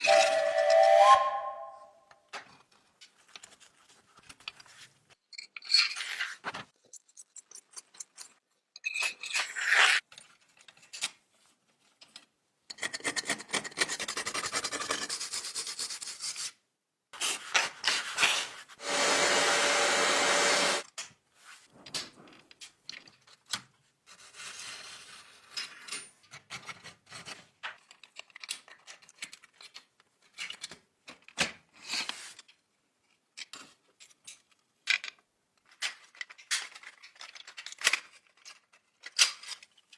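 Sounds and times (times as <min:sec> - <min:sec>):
rubbing and scraping: 0:17.2 - 0:20.8
clicks and taps on small parts: 0:25.6 - 0:31.6, 0:33.3 - 0:39.9.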